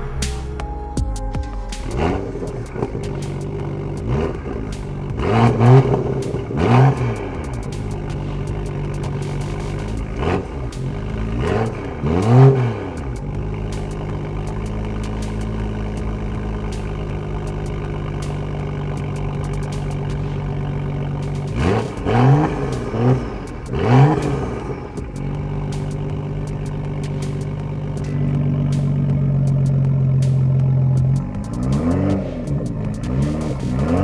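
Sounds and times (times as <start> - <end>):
car engine idling: 0.0 - 34.0
car engine revving: 0.0 - 34.0.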